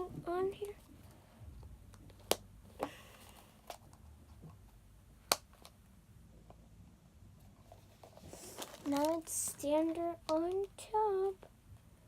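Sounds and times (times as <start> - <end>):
faint handling noise: 7.4 - 11.6.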